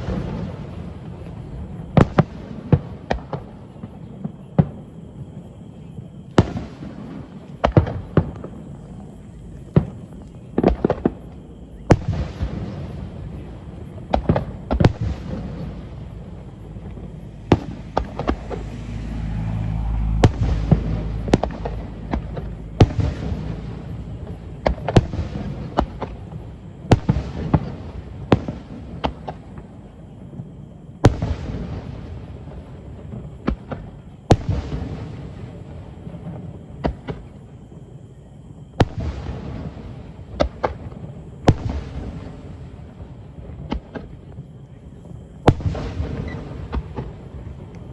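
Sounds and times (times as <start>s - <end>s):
fireworks bangs: 0.0s - 37.8s, 38.7s - 47.9s
low rolling rumble: 13.1s - 26.9s.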